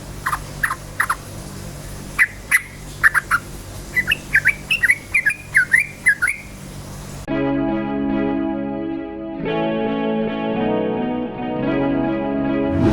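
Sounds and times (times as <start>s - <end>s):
bulbul singing: 0.0s - 7.2s
low hum: 0.0s - 7.3s.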